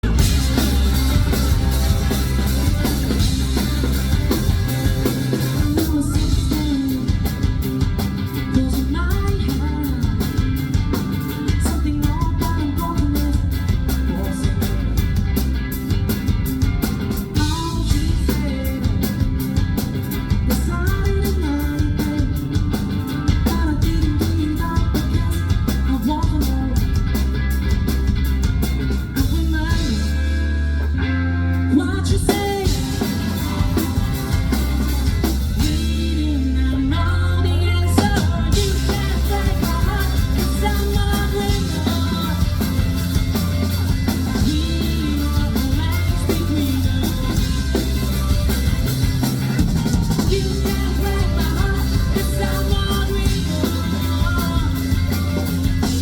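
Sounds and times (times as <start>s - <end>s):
lead vocal singing: 0.0s - 7.8s, 31.7s - 56.0s
rock band playing live: 0.0s - 56.0s.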